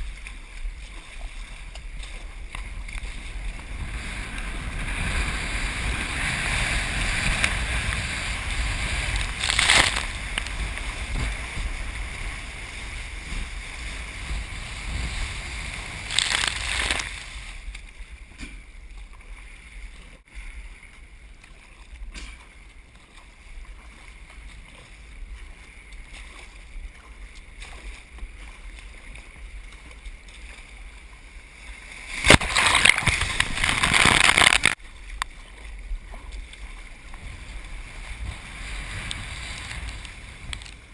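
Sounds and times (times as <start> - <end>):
rushing surges of water: 0.0 - 40.9
wind: 0.0 - 40.9
rough ocean surf: 3.1 - 17.6, 31.6 - 34.8, 37.2 - 40.9.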